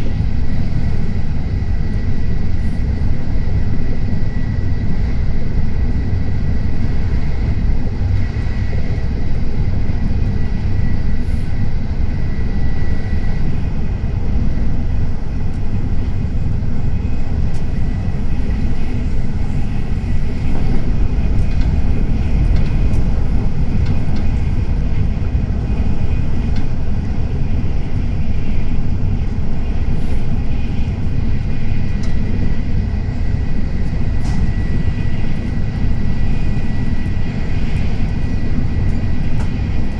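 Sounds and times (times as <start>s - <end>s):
train running rumble: 0.0s - 39.9s
faint high whine: 8.6s - 39.9s.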